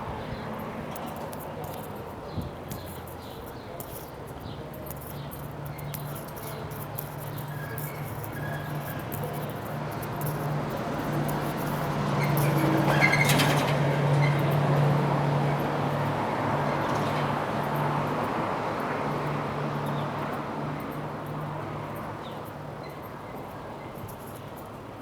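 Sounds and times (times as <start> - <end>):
road noise: 0.0 - 25.0.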